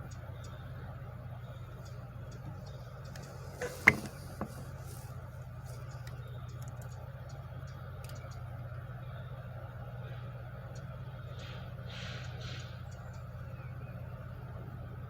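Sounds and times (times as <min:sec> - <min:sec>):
shop machinery humming: 0:01.5 - 0:06.4
small knocks: 0:02.4 - 0:05.2.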